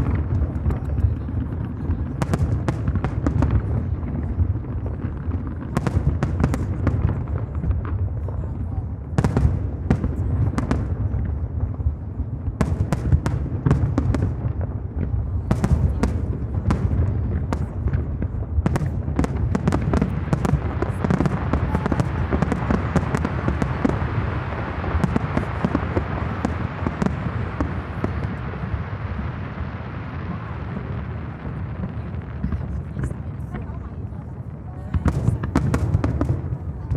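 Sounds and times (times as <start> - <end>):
fireworks bangs: 0.0 - 36.9
fireworks crackle: 0.0 - 36.9.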